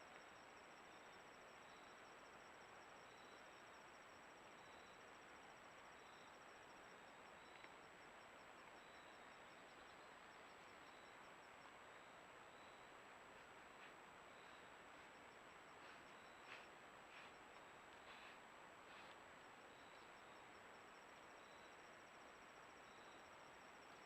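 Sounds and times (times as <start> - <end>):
insect high chirp: 0.0 - 13.0, 13.7 - 24.0
faint click: 7.5 - 7.8.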